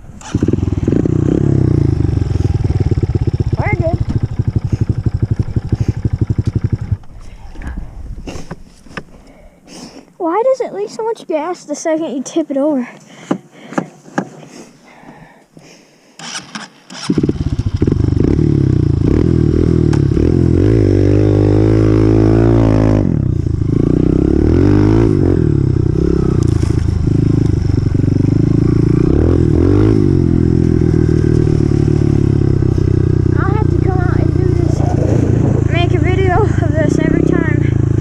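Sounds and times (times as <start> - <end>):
dirt bike engine running: 0.0 - 8.7, 17.0 - 38.0.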